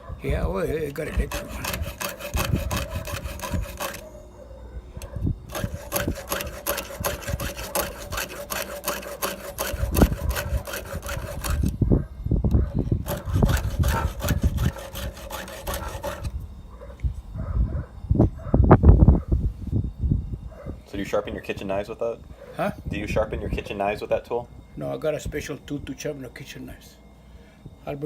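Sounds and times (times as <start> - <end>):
file scraping chainsaw chain: 0.7 - 4.2, 5.0 - 11.8, 12.9 - 16.4.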